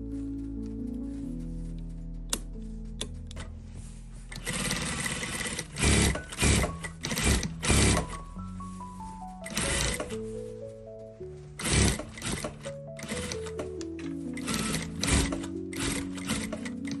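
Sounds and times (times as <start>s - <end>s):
background music: 0.0s - 17.0s
sewing machine stitching: 4.3s - 8.2s, 9.5s - 10.2s, 11.6s - 13.7s, 14.4s - 17.0s.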